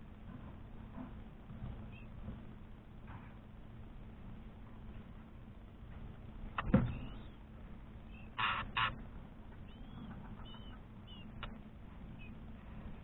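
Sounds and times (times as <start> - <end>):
high bird chirps: 6.9 - 7.4, 8.1 - 9.0, 9.6 - 11.5, 12.1 - 12.4
short harsh bird calls: 8.1 - 9.0.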